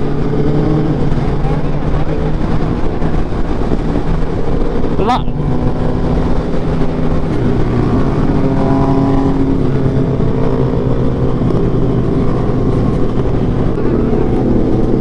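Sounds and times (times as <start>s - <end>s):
heavy wind rush: 0.0s - 15.0s
motorcycle engine at high speed: 0.0s - 15.0s.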